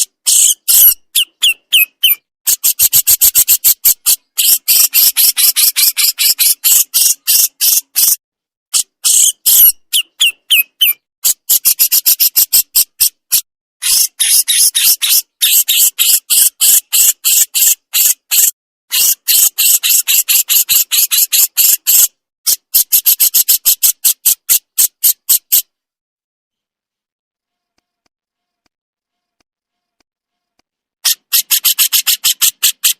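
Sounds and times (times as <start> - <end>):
songbird chattering: 0.3 - 8.2, 9.0 - 12.4.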